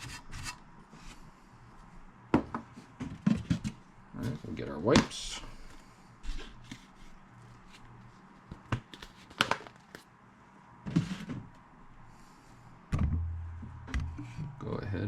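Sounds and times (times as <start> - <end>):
low hum: 11.7 - 15.0.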